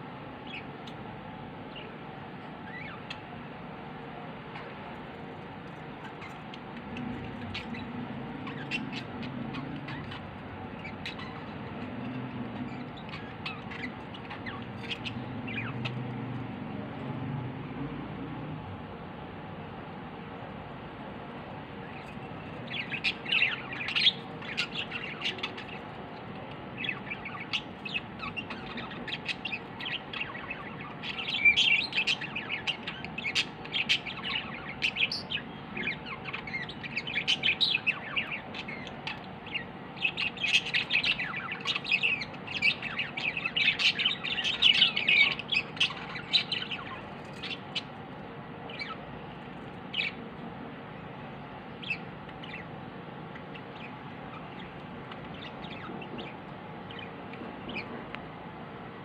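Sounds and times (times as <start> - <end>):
small bird chirping: 0.3 - 16.5, 21.3 - 58.1.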